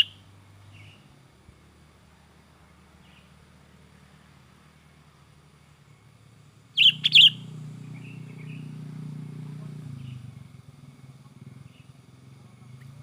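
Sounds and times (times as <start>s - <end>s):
bird calling: 0.0s - 0.2s, 6.8s - 8.7s.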